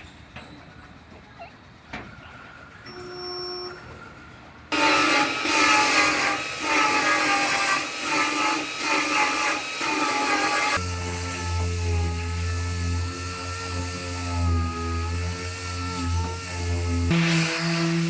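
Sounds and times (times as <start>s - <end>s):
power tool working metal: 4.7s - 18.0s.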